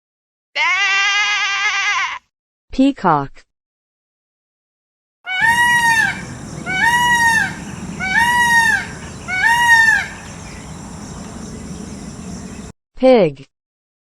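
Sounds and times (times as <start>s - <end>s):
peacock calling: 5.3s - 12.7s
low background noise: 5.4s - 12.7s.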